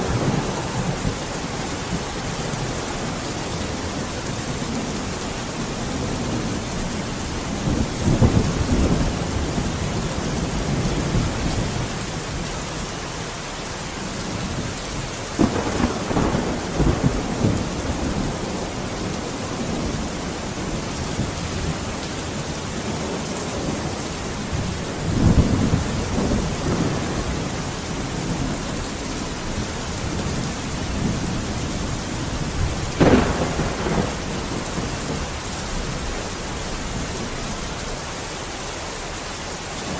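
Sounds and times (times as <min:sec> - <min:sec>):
rolling thunder: 0:00.0 - 0:12.6, 0:14.3 - 0:38.0
steady rain: 0:00.0 - 0:39.9.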